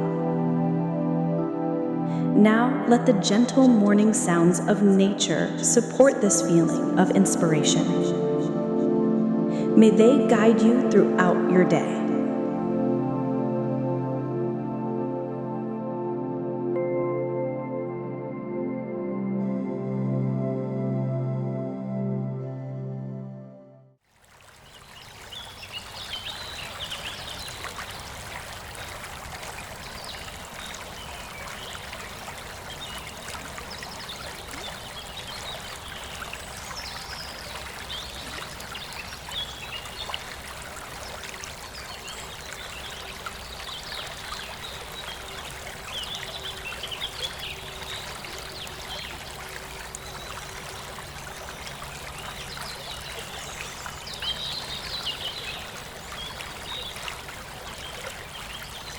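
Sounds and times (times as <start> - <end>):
babbling stream: 24.1 - 58.9.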